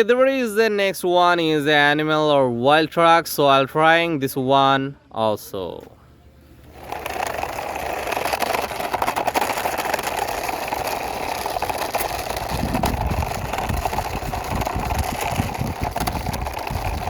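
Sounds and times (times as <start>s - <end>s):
toy truck wheels rolling and rattling: 6.6s - 17.0s
deep rumble: 10.1s - 17.0s.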